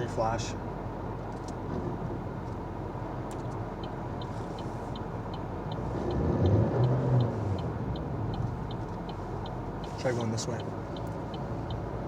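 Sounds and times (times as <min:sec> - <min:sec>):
light ticking: 0:03.3 - 0:12.0
car engine revving: 0:05.6 - 0:12.0.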